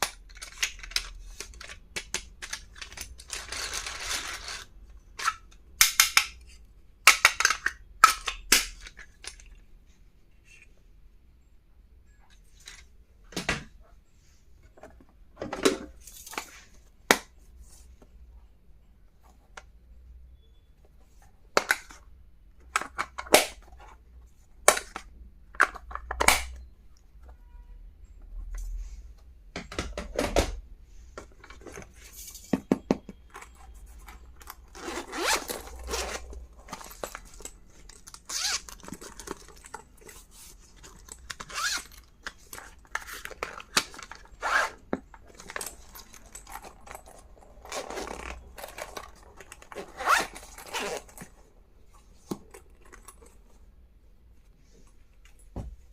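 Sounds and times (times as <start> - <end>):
plastic items clicking: 0.0 - 6.4, 35.6 - 51.4
packaging rustling and tearing: 2.4 - 4.7, 34.4 - 51.4.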